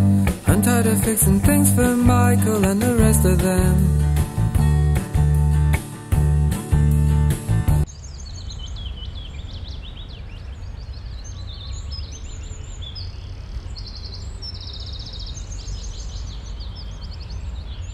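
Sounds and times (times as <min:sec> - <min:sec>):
small birds chirping and twittering: 0:07.8 - 0:17.9.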